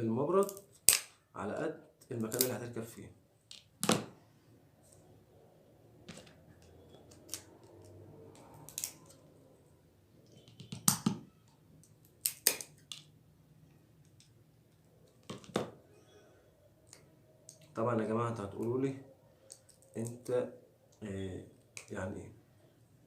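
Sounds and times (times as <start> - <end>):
sharp clicks of small parts: 7.1 - 9.2, 11.8 - 13.1.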